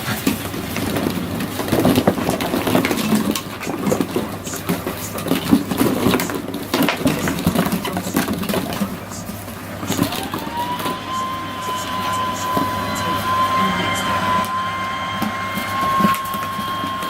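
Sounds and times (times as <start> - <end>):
puppies scuffling and playing: 0.0 - 12.9.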